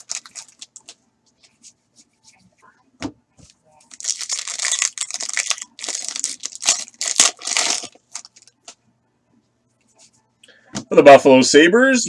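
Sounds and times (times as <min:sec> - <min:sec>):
foil wrapper tearing and crinkling: 0:00.0 - 0:00.9, 0:03.9 - 0:08.5.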